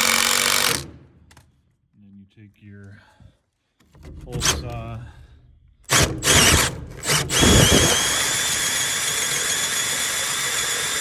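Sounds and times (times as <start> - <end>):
power drill hole saw cutting metal: 0.0 - 0.9, 5.9 - 11.0.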